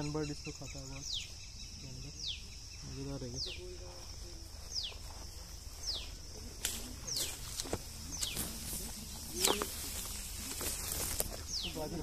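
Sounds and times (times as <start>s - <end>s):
insect buzz: 0.0s - 12.0s
footsteps crunching on dry grass: 3.4s - 12.0s.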